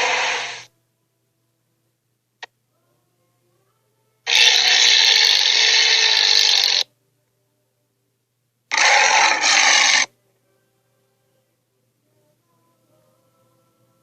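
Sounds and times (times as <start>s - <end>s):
cartoon dinosaur screeches: 0.0s - 0.7s, 4.3s - 6.8s, 8.7s - 10.1s.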